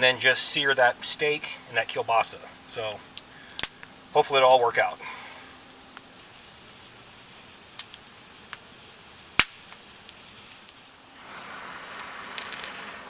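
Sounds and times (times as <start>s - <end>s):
campfire wood crackling: 0.0s - 13.0s
steady hiss: 0.0s - 13.0s
sharp fire pops: 2.8s - 13.0s.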